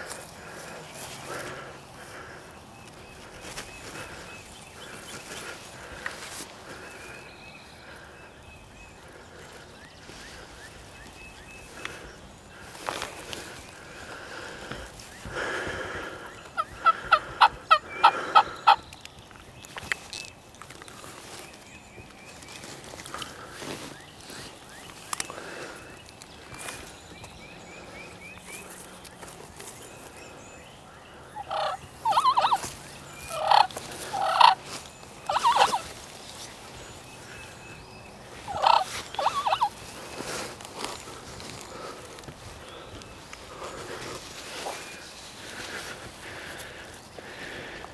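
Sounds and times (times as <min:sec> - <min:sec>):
turkey rattling call: 0:16.5 - 0:18.8, 0:31.4 - 0:34.7, 0:35.3 - 0:36.0, 0:38.5 - 0:39.8
turkey yelping: 0:16.6 - 0:18.8, 0:31.4 - 0:32.7, 0:33.3 - 0:34.6, 0:35.3 - 0:35.9, 0:38.5 - 0:39.8.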